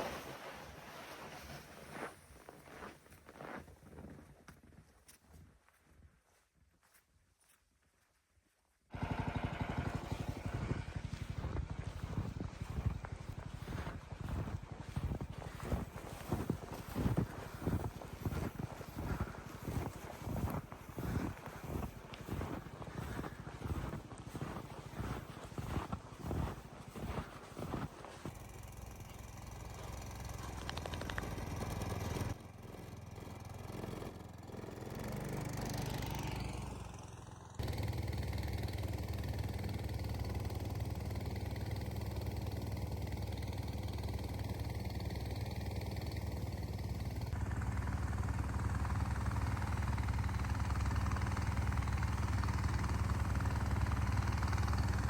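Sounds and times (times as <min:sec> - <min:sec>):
engine running steadily: 0:08.9 - 0:55.0.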